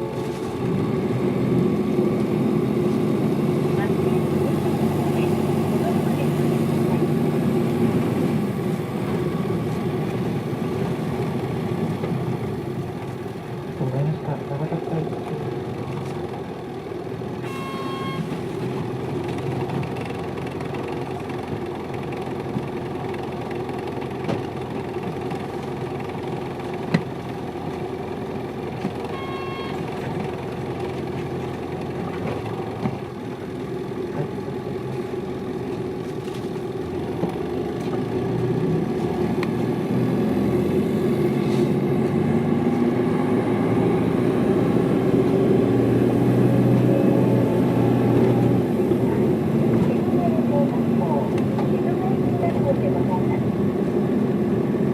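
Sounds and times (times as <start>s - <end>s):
diesel engine running: 0.0s - 54.9s
road noise: 0.0s - 54.9s
short electronic beep: 17.4s - 18.3s, 29.1s - 29.8s.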